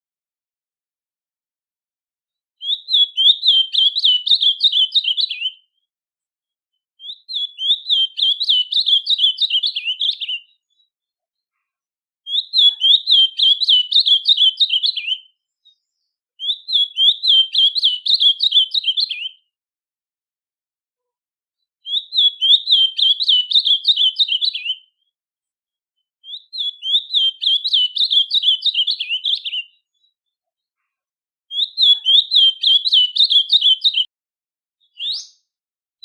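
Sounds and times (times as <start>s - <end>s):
songbird chirping: 2.6s - 5.9s, 7.0s - 11.0s, 12.3s - 19.5s, 21.8s - 25.0s, 26.2s - 30.2s, 31.5s - 34.1s.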